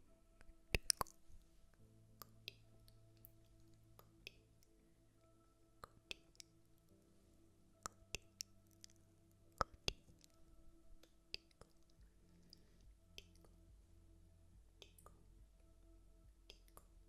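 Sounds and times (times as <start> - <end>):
faint steady hum: 0.0 - 17.0
sharp clicks and light taps: 0.4 - 1.4, 7.8 - 10.4, 16.4 - 17.0.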